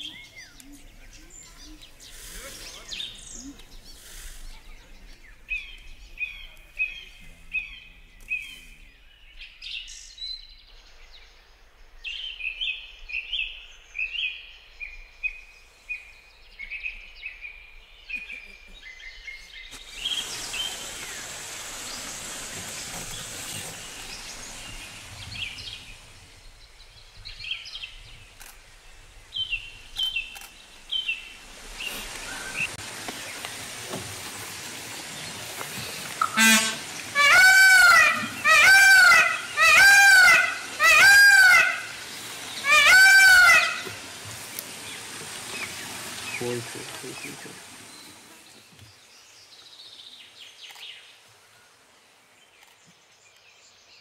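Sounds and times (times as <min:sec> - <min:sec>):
running water rushing: 0:00.0 - 0:07.7, 0:19.5 - 0:49.2
birds chirping: 0:00.0 - 0:51.3.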